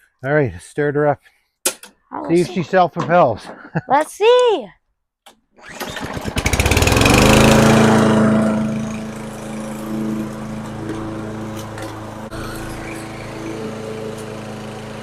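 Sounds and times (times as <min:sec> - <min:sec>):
lawn mower engine starting: 0:05.6 - 0:15.0.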